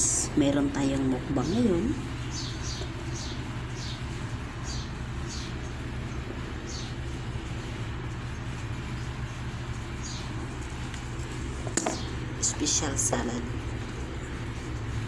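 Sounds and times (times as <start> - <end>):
steady low hum: 0.0 - 15.0
small bird chirping: 2.2 - 5.7, 6.7 - 7.0, 10.0 - 10.9.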